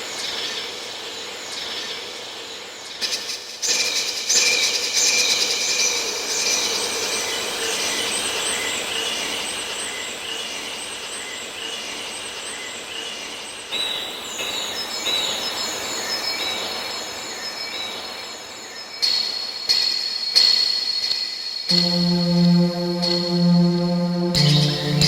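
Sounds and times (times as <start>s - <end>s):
faint steady synth tone: 21.7s - 25.0s.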